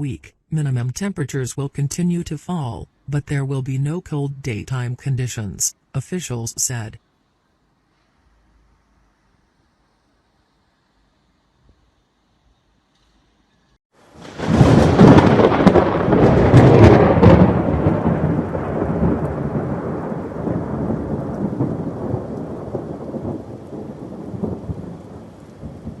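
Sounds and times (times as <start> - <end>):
rain falling: 14.0 - 26.0
thunder crack rolling: 14.1 - 26.0.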